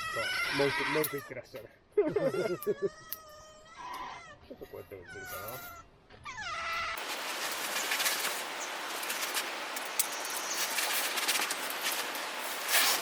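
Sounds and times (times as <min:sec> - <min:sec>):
campfire crackling: 0:07.0 - 0:13.0.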